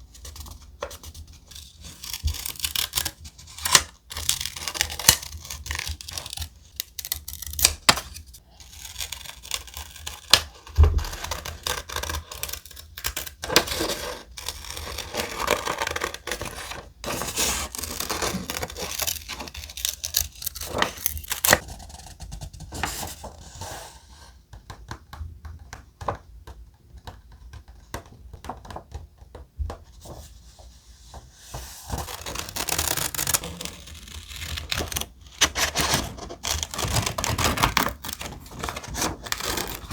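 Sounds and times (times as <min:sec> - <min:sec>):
paper rustling and tearing: 0:00.2 - 0:22.1, 0:31.5 - 0:39.9.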